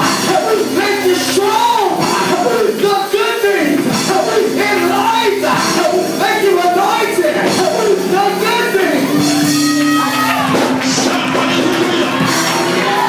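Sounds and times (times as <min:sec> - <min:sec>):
people singing and shouting: 0:00.0 - 0:13.0.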